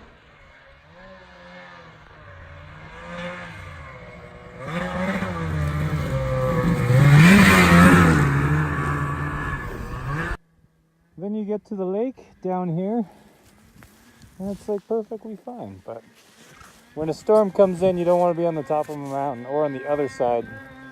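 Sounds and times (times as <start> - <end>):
snowmobile engine revving: 0.0 - 10.4, 12.6 - 20.9.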